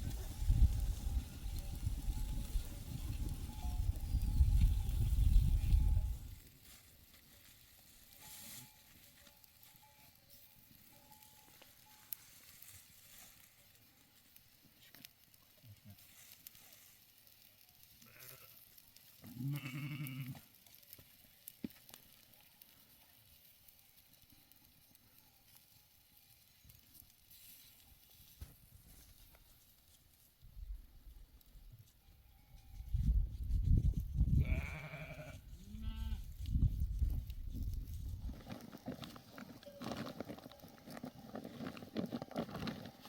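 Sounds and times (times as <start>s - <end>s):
sheep bleating: 18.0s - 18.6s, 19.2s - 20.4s, 34.4s - 36.2s.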